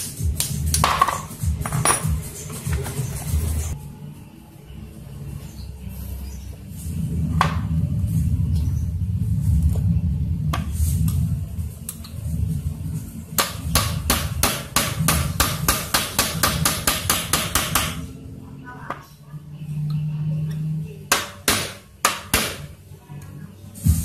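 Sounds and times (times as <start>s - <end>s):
steady low hum: 0.0s - 24.0s
hammer strikes: 0.4s - 2.9s, 13.4s - 18.1s, 21.1s - 22.7s.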